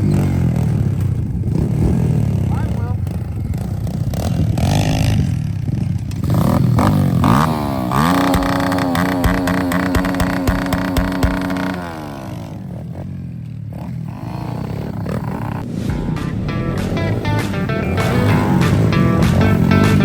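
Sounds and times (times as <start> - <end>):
pit bike engine revving: 0.0 - 20.0.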